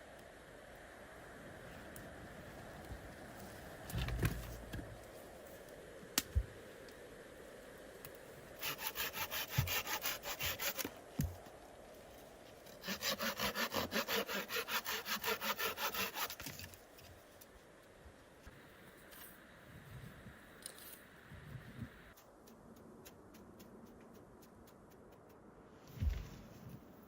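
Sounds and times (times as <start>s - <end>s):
dull thump: 3.9s - 4.9s, 26.0s - 26.5s
hand saw cutting wood: 8.6s - 10.9s, 12.8s - 16.8s.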